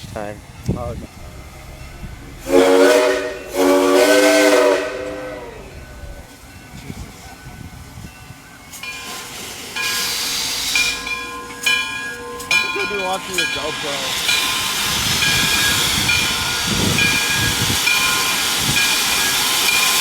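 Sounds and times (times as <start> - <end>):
steam hissing: 0.0 - 20.0
steam locomotive whistle: 1.1 - 7.0, 8.8 - 20.0.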